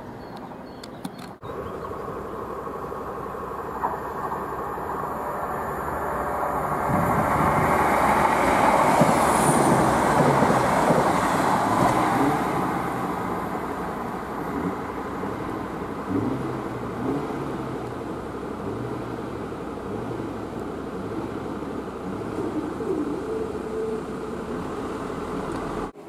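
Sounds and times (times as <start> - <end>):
diesel train engine approaching: 0.0 - 26.0
diesel train passing: 1.4 - 26.0
high squeal: 4.1 - 13.4, 22.3 - 24.8.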